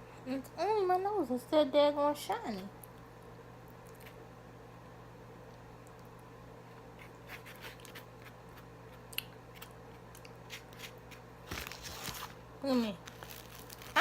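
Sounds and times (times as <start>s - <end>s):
faint steady hum: 0.0s - 14.0s
chewing crunches and mouth clicks: 3.7s - 4.2s, 5.5s - 11.2s.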